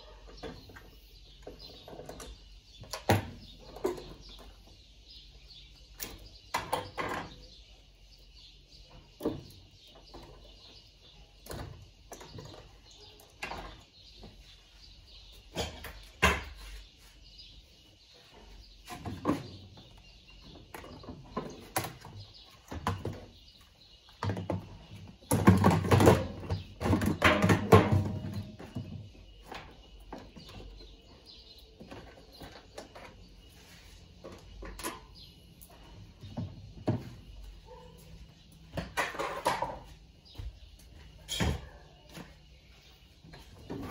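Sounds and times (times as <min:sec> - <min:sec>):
parts and tools clattering: 0:24.1 - 0:37.8, 0:38.6 - 0:40.5.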